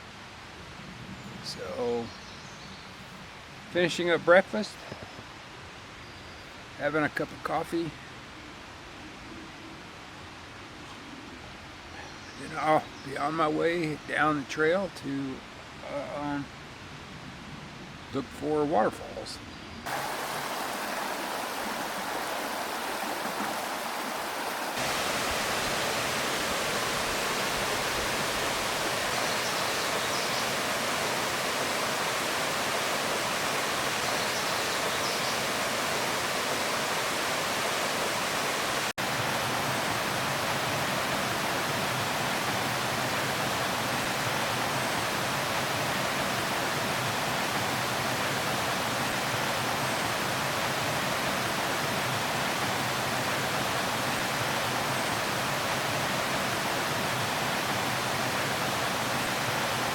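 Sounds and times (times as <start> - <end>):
water pouring over rocks: 19.9 - 34.2.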